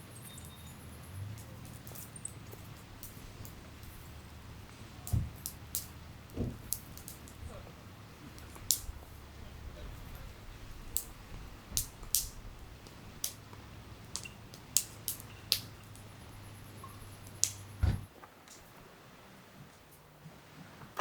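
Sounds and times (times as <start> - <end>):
small objects clicking and tapping: 1.3 - 4.1, 11.8 - 17.7.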